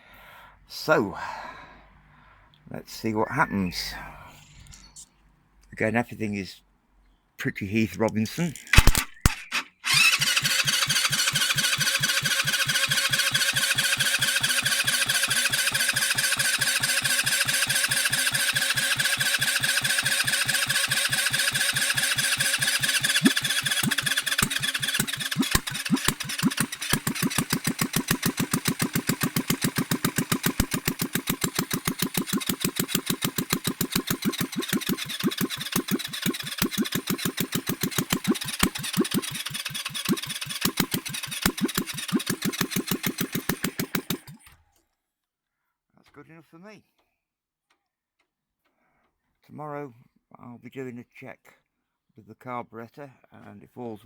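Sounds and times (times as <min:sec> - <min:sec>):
electric starter whining: 0:08.6 - 0:44.6
scooter engine running unevenly: 0:09.9 - 0:44.4.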